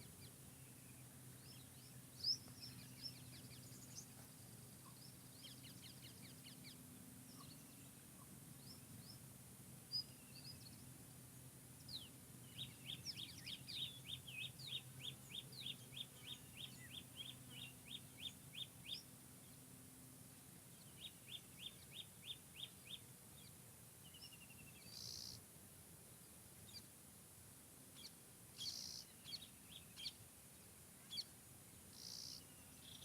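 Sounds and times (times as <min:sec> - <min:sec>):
faint low hum: 0:00.0 - 0:33.0
songbirds chirping: 0:00.0 - 0:33.0.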